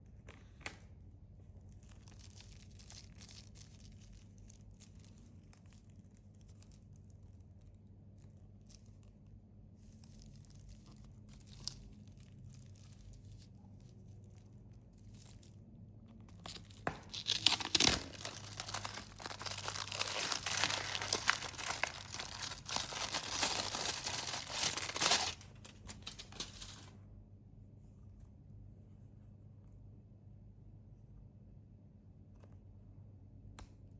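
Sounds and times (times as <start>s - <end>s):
plastic wrapper crinkling: 1.7s - 6.9s, 10.1s - 13.5s, 16.3s - 26.9s
plastic wrapper tearing: 10.5s - 13.1s, 16.3s - 26.9s.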